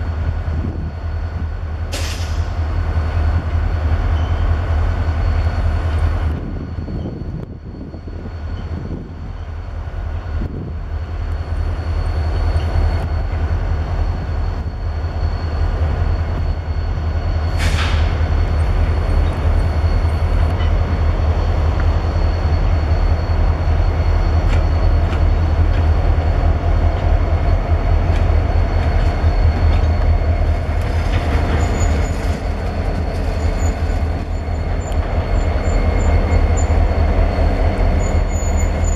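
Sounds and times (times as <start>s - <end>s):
freight train rumbling: 0.0s - 38.9s
high wheel squeal: 11.4s - 38.9s.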